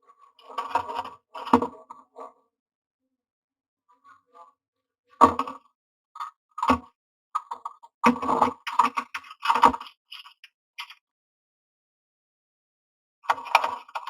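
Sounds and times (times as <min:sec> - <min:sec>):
bird clicking and scraping in nest box: 0:08.3 - 0:11.0.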